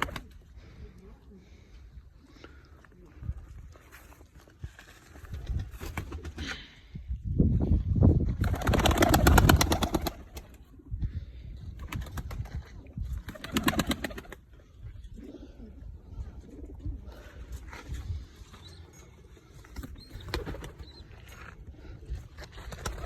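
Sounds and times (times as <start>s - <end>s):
pigeons cooing: 13.4s - 17.4s.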